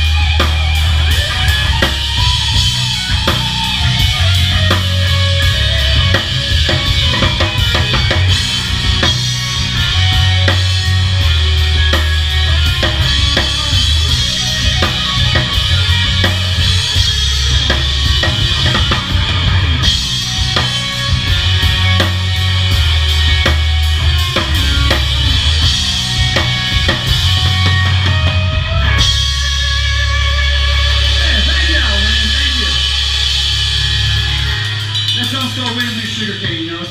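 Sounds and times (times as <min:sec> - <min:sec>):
bass drum and snare: 0:00.0 - 0:30.4
live band playing: 0:00.0 - 0:36.9
sustained bass notes: 0:00.0 - 0:36.9.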